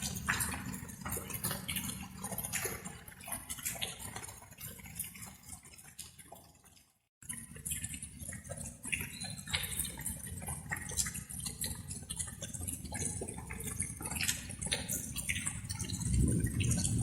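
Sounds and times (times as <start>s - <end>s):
light rain dripping: 0.0s - 17.0s
low rumble: 15.9s - 17.0s.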